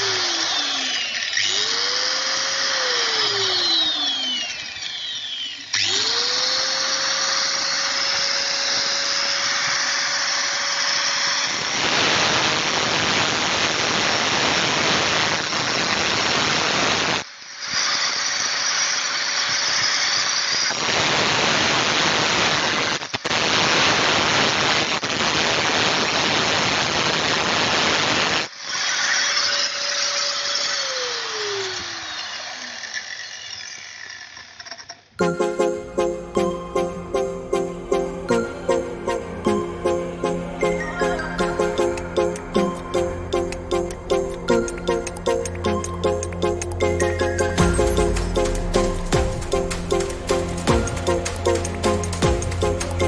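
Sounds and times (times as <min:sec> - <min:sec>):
angle grinder whine: 0:00.0 - 0:11.8
harsh grinding while cutting: 0:00.0 - 0:11.8, 0:17.4 - 0:20.7, 0:28.5 - 0:35.0.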